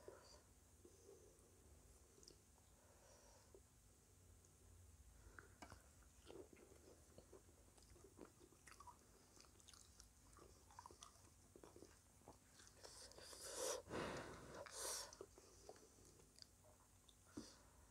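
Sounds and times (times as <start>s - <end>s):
chewing crisp fried snacks: 5.4s - 13.6s, 14.2s - 17.3s.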